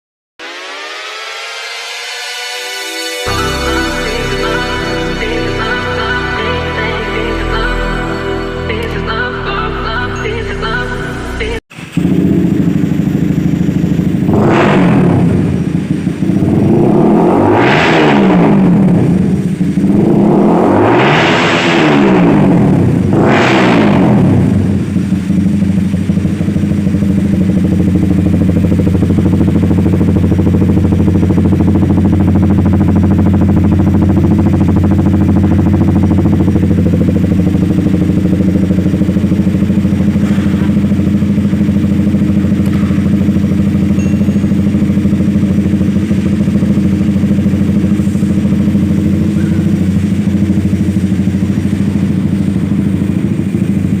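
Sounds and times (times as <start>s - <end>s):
motorcycle engine idling: 10.6s - 17.4s, 18.3s - 20.6s, 21.8s - 54.0s.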